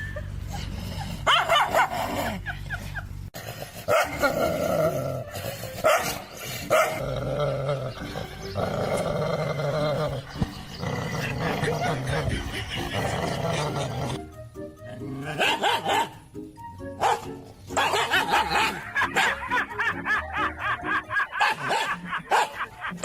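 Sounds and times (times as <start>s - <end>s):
dog barking: 1.3s - 2.1s, 3.9s - 4.2s, 5.8s - 7.0s, 15.3s - 16.2s, 17.0s - 19.4s, 21.4s - 22.7s
dog growling: 3.4s - 14.2s.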